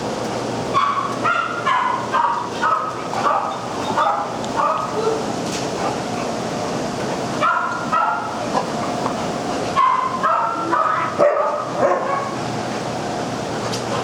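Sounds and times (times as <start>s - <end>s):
steady background noise: 0.0s - 14.0s
dogs barking and yipping: 0.7s - 6.3s, 7.4s - 9.0s, 9.7s - 12.4s.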